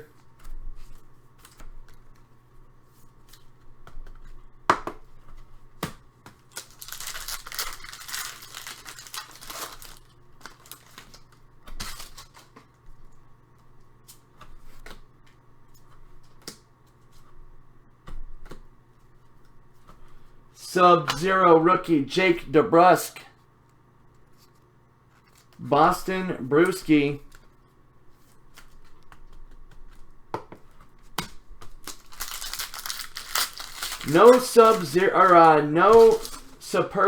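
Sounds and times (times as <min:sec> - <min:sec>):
cards and wrappers clicking: 0:06.4 - 0:11.2, 0:31.8 - 0:36.6
card packs tearing and crinkling: 0:06.5 - 0:12.6, 0:31.8 - 0:37.0.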